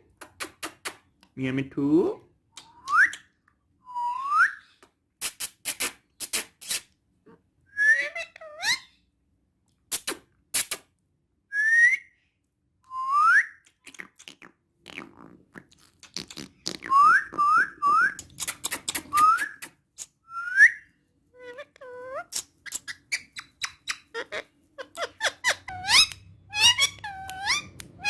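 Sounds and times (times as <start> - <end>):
parrot whistling: 16.9 - 18.3, 18.9 - 19.7, 20.3 - 20.8, 25.0 - 28.0.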